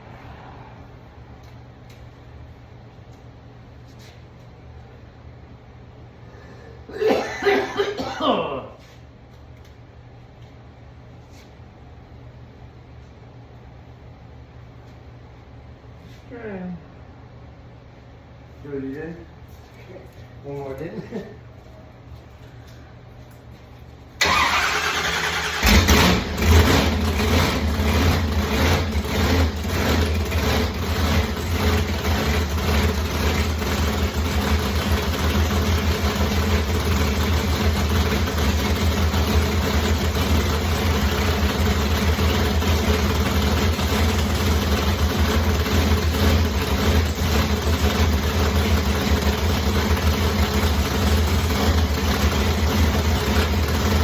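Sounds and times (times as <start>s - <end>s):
engine starter cranking: 24.2s - 28.3s
engine idling lumpily: 25.6s - 54.0s.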